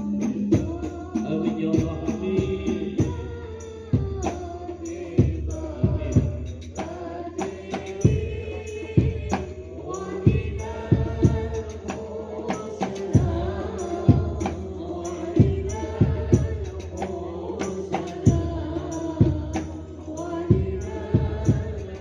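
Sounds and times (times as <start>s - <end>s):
man singing ornamented melody: 0.0s - 3.4s.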